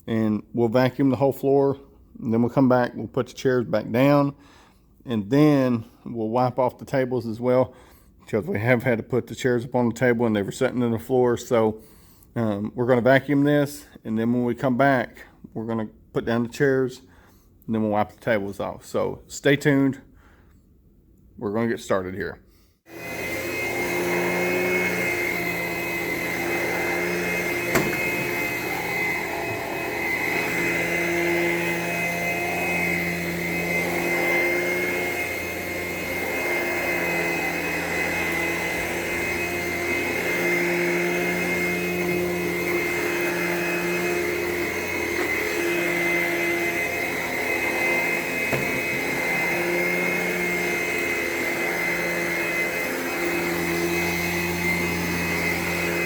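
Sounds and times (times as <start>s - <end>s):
vacuum cleaner running: 22.9s - 56.0s.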